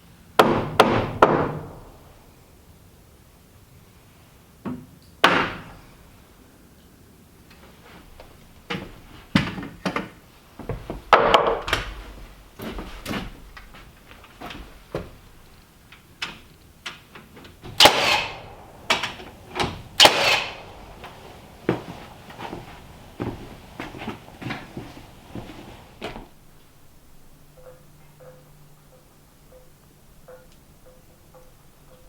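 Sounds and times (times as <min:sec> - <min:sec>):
carpentry knocks and bangs: 0:17.7 - 0:26.2.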